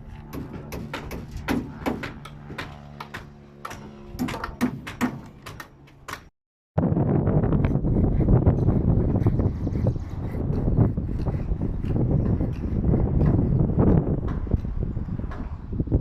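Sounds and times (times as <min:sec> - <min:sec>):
steady low hum: 0:00.0 - 0:16.0
hammering on timber: 0:00.3 - 0:06.3, 0:12.0 - 0:15.6
wind on microphone: 0:06.8 - 0:16.0.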